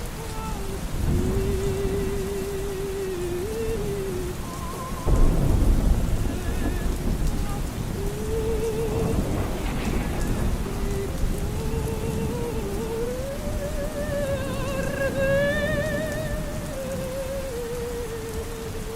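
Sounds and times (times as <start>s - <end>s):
muffled opera music: 0.0s - 18.9s
steady rain: 0.0s - 18.9s
thunder rolling: 0.0s - 18.9s.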